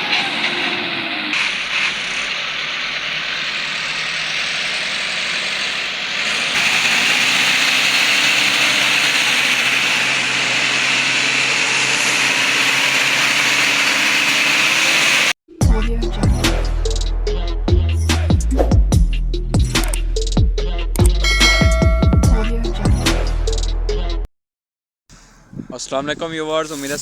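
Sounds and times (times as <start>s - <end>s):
tractor diesel engine running: 0.0s - 15.4s, 21.0s - 23.0s.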